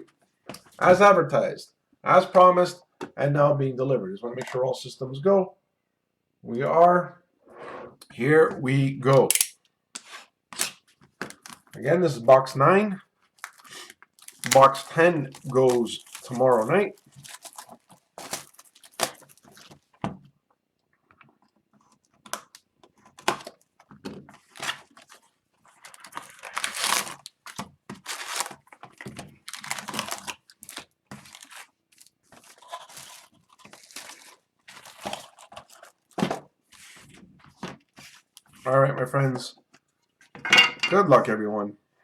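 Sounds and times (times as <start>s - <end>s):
plastic wrap and foil crinkling: 13.2s - 20.0s, 22.0s - 38.6s.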